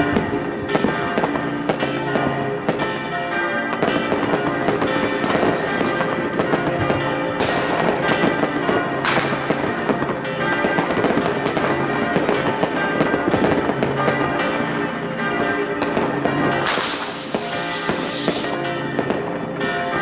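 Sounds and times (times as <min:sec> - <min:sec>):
sharp fireworks bangs: 0:03.7 - 0:10.1, 0:15.8 - 0:20.0
fireworks crackling: 0:04.1 - 0:08.5, 0:15.8 - 0:19.2.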